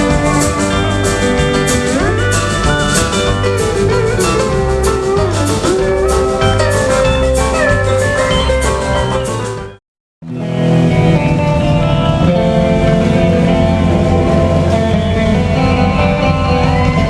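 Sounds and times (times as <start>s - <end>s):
drums steady beat: 0.0s - 9.8s
bass: 0.0s - 17.0s
lead guitar sliding notes: 0.0s - 17.0s.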